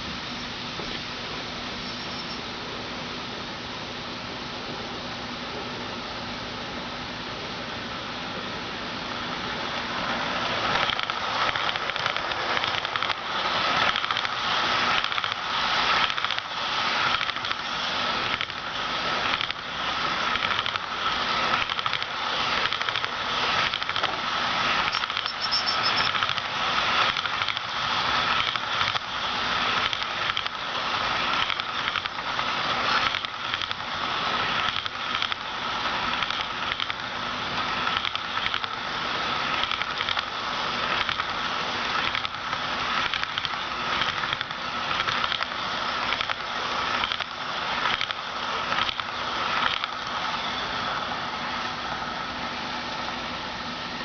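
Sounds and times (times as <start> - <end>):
model train wheels clattering: 9.3 - 52.0.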